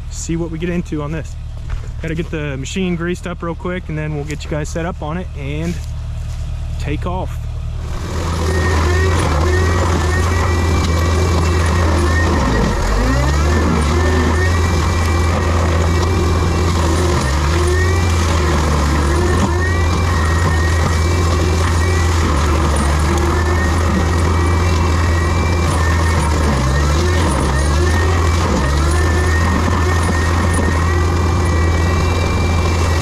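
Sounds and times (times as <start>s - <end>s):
heavy diesel machinery running: 0.0s - 33.0s
short high squeals: 7.8s - 33.0s.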